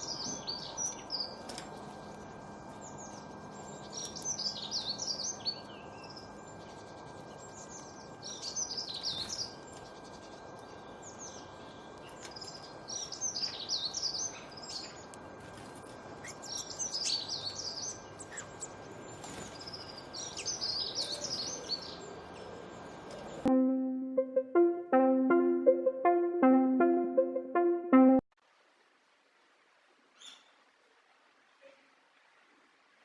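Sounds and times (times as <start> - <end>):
steady background hiss: 0.0 - 23.5.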